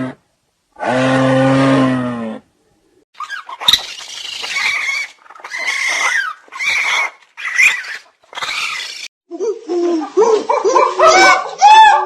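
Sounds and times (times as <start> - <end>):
animal screechy calls: 3.2 - 9.1.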